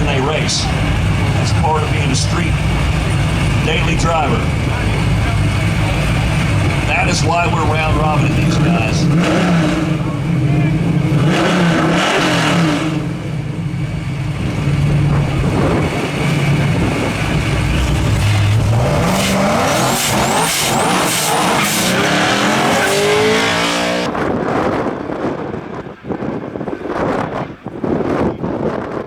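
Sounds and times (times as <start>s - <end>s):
drag racing engines revving: 0.0s - 29.0s
wind noise on microphone: 2.6s - 19.2s, 23.0s - 29.0s.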